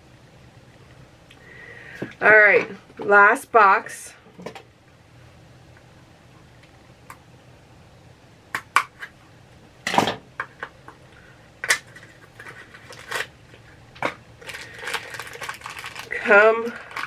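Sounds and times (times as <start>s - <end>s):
packaging rustling: 11.8s - 13.7s, 14.4s - 17.0s.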